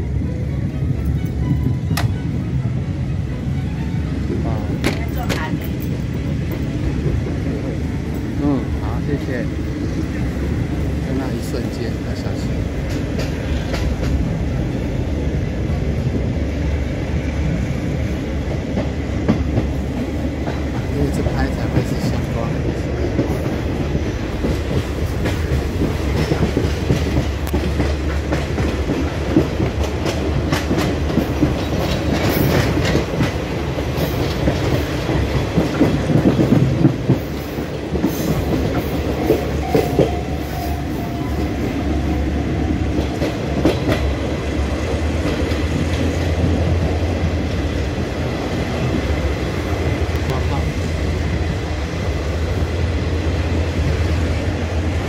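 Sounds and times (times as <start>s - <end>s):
moving train rumble: 0.0s - 55.0s.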